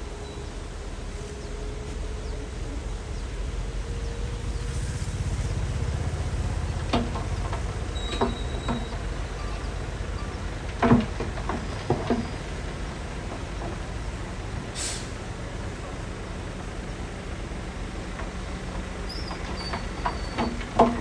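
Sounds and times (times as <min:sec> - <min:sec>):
diesel machinery running: 0:00.0 - 0:21.0
short hiss: 0:14.7 - 0:15.3.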